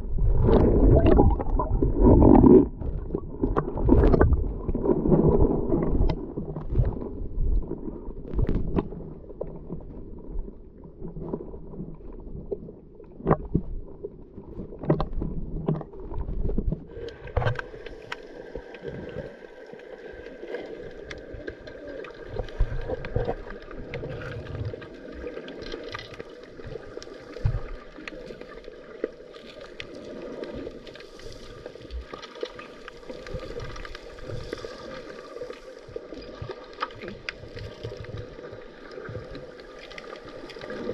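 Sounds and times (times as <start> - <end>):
underwater rumble and gurgling: 0.0 - 40.9.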